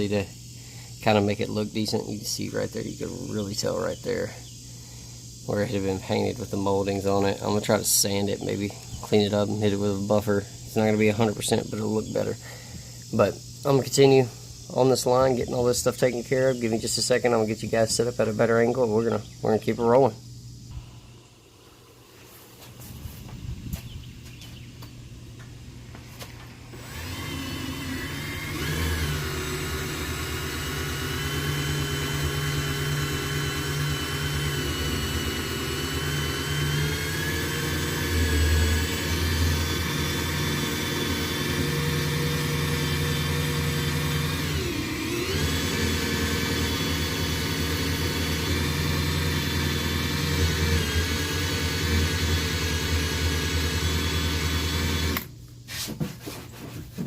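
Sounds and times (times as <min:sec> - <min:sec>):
power tool whining: 0:26.6 - 0:55.3.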